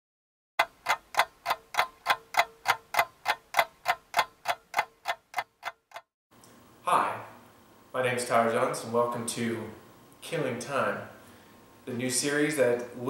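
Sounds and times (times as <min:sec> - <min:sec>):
clock ticking: 0:00.6 - 0:06.1.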